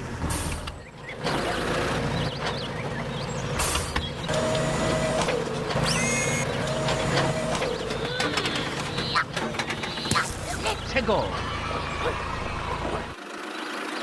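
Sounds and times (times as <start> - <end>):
toy electric motor whining: 5.7 - 10.8
short high clicks: 5.8 - 6.5.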